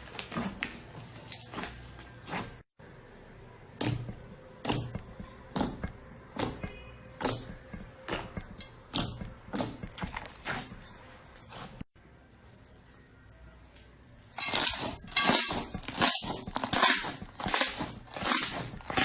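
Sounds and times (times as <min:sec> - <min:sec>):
sticky slime popping: 0:14.4 - 0:19.0.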